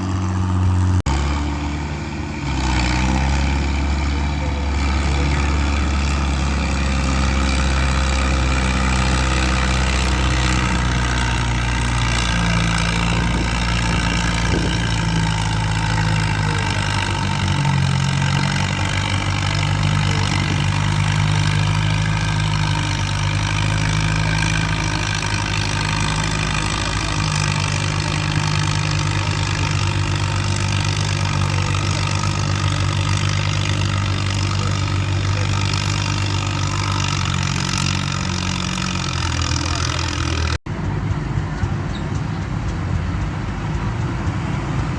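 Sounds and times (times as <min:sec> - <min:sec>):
heavy vehicle engine revving: 0:00.0 - 0:44.9.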